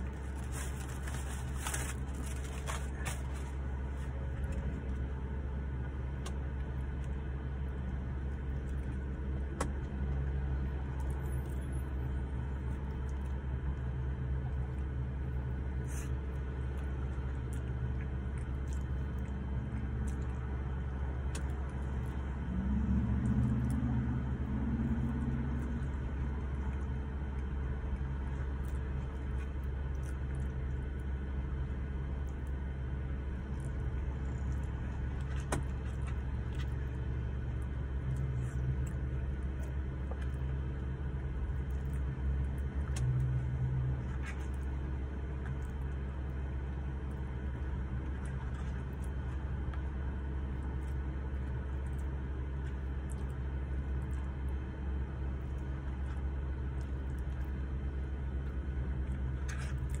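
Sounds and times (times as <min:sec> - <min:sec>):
brief low hum: 0:15.5 - 0:31.0.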